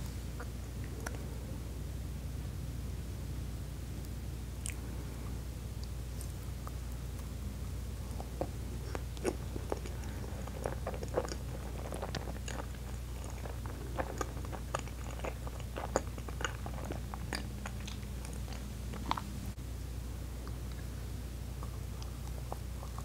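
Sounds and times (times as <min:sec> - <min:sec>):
wet chewing with mouth clicks: 0:04.6 - 0:04.9, 0:08.0 - 0:19.5, 0:21.6 - 0:23.0.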